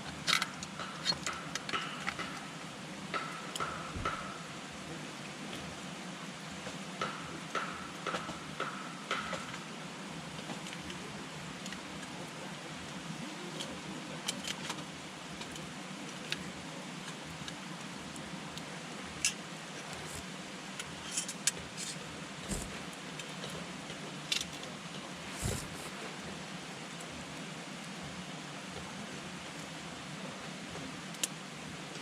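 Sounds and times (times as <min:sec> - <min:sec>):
campfire hiss: 0:00.0 - 0:32.0
burning wood crackling and popping: 0:19.5 - 0:23.5, 0:25.2 - 0:26.3.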